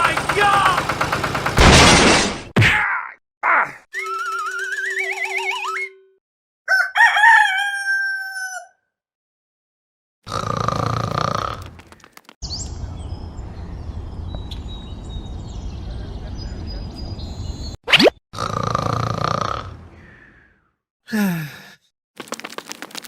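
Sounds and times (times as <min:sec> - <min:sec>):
rooster crowing: 0:06.7 - 0:08.9.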